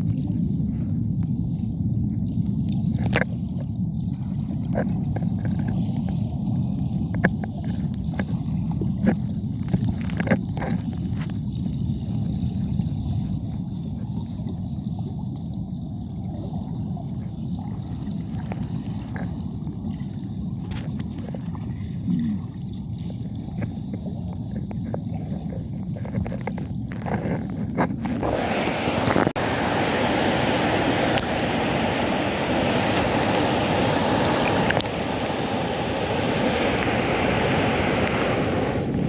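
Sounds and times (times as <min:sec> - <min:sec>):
rushing river and waterfall: 0:28.2 - 0:38.9.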